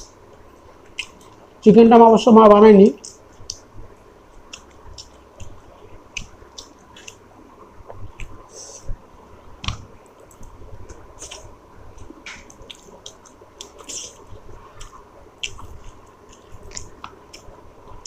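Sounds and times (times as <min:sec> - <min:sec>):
person chewing: 0:00.3 - 0:01.4, 0:04.3 - 0:07.2, 0:10.1 - 0:18.0.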